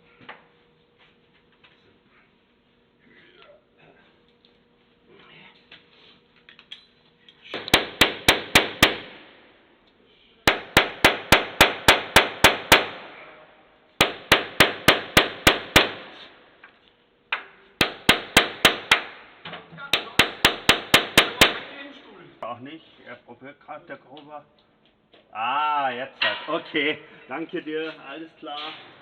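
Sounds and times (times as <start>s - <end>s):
hammer on metal: 7.5s - 9.3s, 10.5s - 13.4s, 14.0s - 16.3s, 17.4s - 19.2s, 19.9s - 21.9s.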